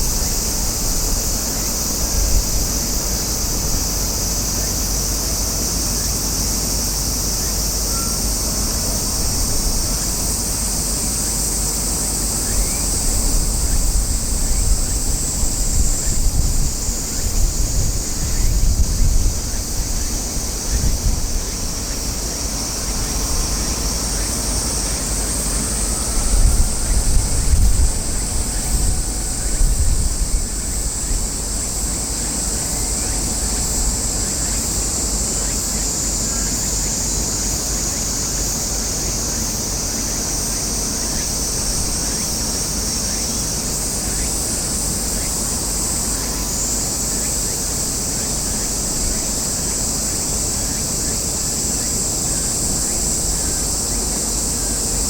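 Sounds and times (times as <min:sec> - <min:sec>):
wind rumbling on microphone: 0:00.0 - 0:05.2, 0:07.4 - 0:36.5
cicadas shrilling: 0:00.0 - 0:55.0.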